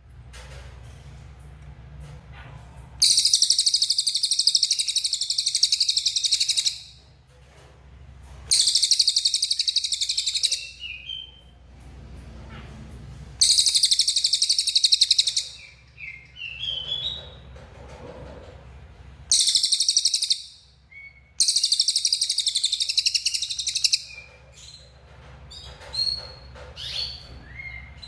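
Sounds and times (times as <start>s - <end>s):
bird whistled notes: 3.0s - 6.8s, 8.5s - 11.4s, 13.4s - 17.1s, 19.3s - 24.2s
bird buzzy rattling trills: 3.0s - 7.0s, 8.5s - 11.4s, 13.4s - 17.6s, 19.3s - 20.7s, 21.3s - 28.0s.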